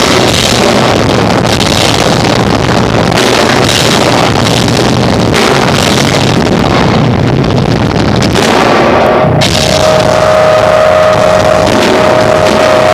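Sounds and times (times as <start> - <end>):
live rock band distorted: 0.0 - 12.9.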